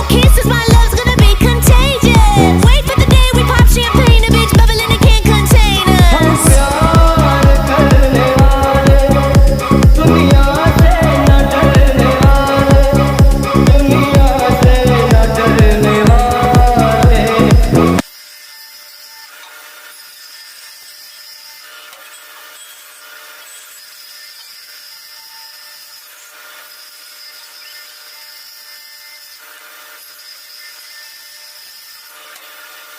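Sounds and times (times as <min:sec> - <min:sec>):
tool scraping wood: 0:17.3 - 0:32.9.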